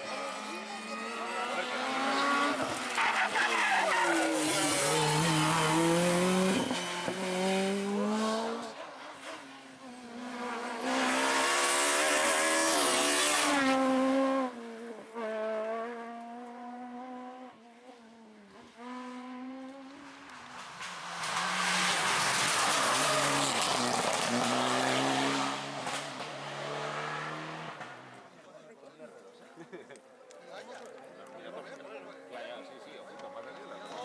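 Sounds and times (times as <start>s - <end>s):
rally car engine at full throttle: 0.0s - 28.3s
hissing tyre noise: 20.2s - 26.4s.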